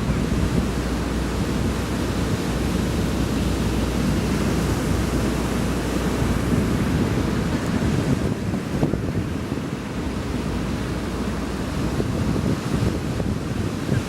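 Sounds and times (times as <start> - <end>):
surf washing onto beach: 0.0 - 14.0
wind rumbling on microphone: 0.0 - 14.0.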